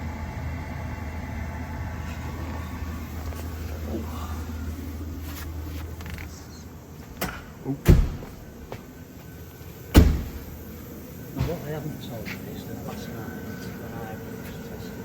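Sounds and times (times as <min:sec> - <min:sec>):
low steady hum: 0:00.0 - 0:15.0
heavy thumps: 0:07.1 - 0:08.9, 0:09.9 - 0:10.6.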